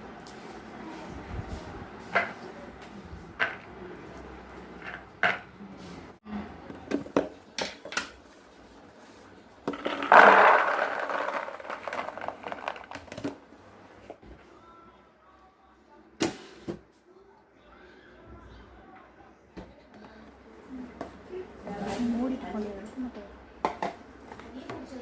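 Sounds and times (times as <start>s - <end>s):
rustling and scraping: 8.2s - 13.4s
containers and lids clicking: 9.7s - 13.4s.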